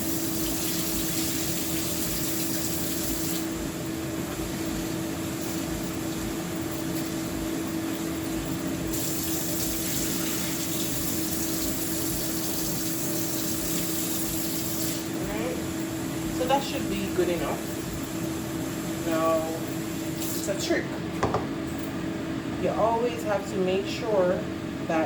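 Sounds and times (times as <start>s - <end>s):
tap water running into pot: 0.0s - 3.5s, 8.9s - 15.1s
steady hum: 0.0s - 25.0s.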